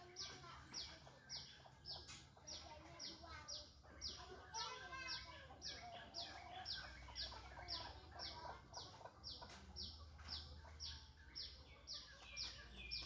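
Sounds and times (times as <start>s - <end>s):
bird high chirps: 0.0s - 13.0s.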